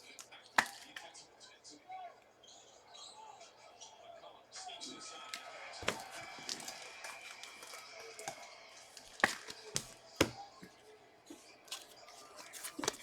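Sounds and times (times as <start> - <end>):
trading cards rustling and sliding: 5.8 - 10.4, 11.7 - 13.0.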